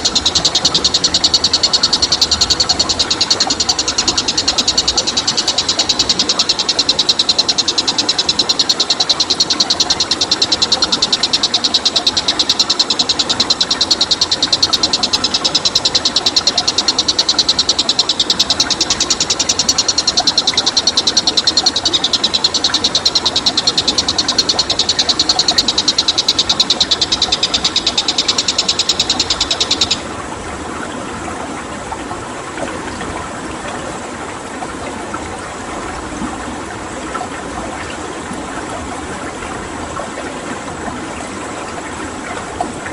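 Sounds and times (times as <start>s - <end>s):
high-pitched pulsing animal trill: 0.0s - 30.0s
stream running water: 0.0s - 42.9s.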